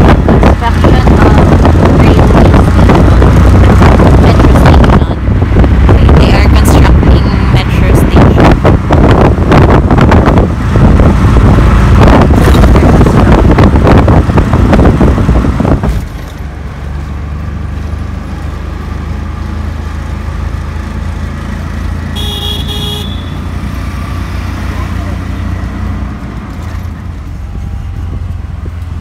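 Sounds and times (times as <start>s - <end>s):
wind buffeting: 0.0s - 16.1s
low engine drone: 0.0s - 29.0s
rough vehicle noise with rattling: 0.0s - 29.0s
horn toot: 22.2s - 23.6s.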